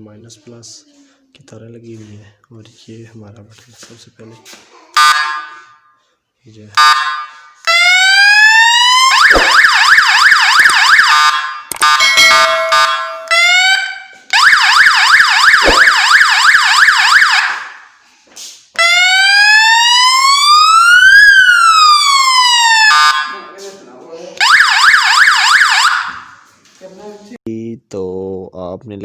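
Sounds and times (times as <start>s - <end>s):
electronic siren wail and yelp: 6.8s - 17.9s, 18.8s - 23.4s, 24.4s - 26.4s.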